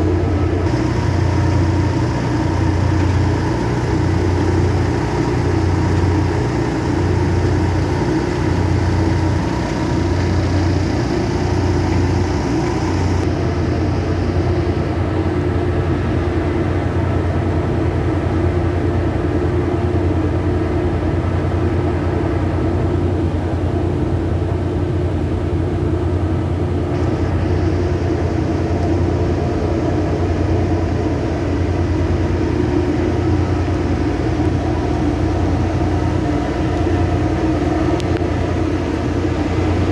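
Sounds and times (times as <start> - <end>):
heavy engines droning: 0.0 - 15.1, 26.9 - 39.9
high hiss: 0.7 - 13.3.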